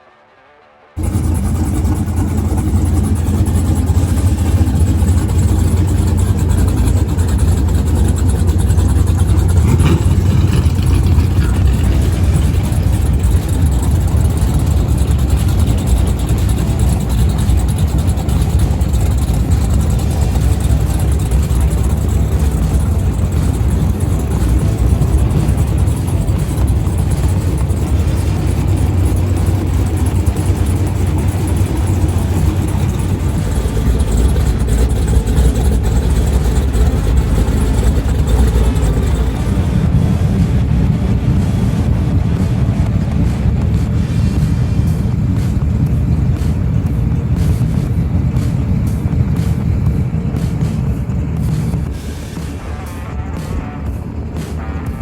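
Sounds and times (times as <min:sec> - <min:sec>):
car engine running: 0:01.0 - 0:55.0.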